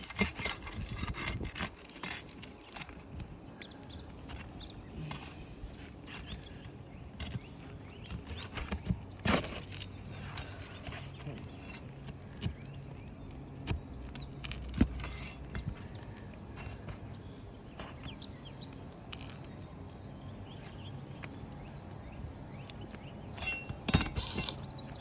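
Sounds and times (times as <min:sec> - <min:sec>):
knocks and scuffs on a roof: 0:00.0 - 0:18.6.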